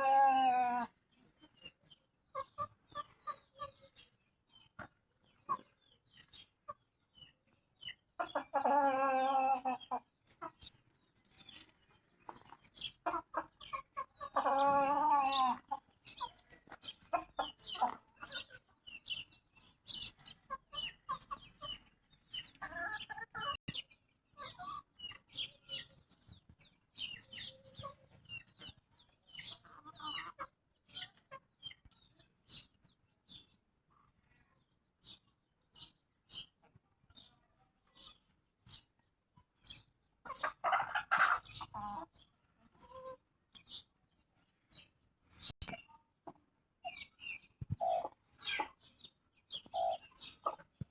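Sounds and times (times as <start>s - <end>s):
loud drawn-out chicken calls: 0.0s - 1.6s, 7.9s - 10.7s, 12.3s - 18.7s, 40.2s - 42.1s
chickens clucking: 0.0s - 50.9s.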